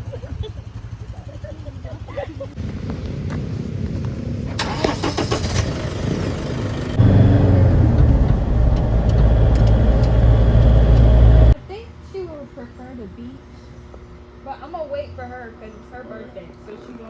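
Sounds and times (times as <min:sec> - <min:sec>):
atv engines running: 0:00.0 - 0:11.6.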